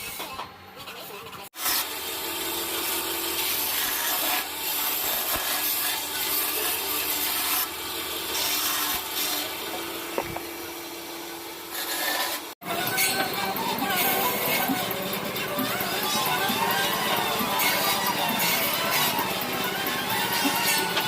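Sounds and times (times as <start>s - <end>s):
wood being sanded: 1.6s - 21.0s.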